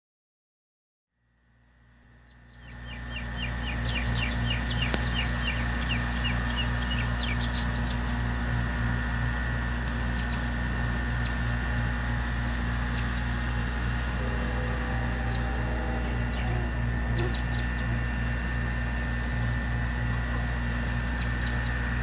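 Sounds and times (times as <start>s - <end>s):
steady low hum: 1.2s - 22.0s
bird chirping: 2.3s - 8.1s, 12.9s - 18.0s.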